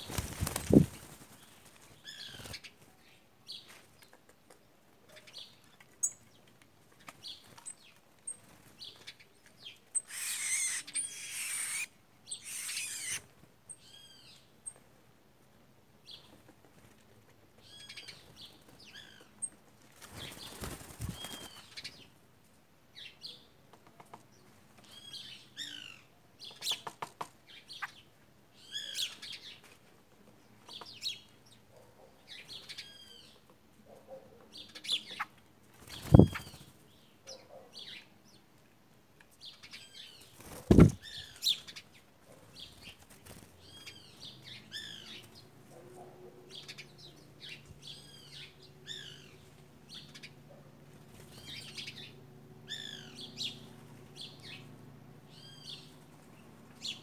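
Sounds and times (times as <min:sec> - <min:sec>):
birds chirping: 0:07.2 - 0:14.8, 0:20.2 - 0:22.1, 0:34.1 - 0:38.4, 0:51.1 - 0:57.0.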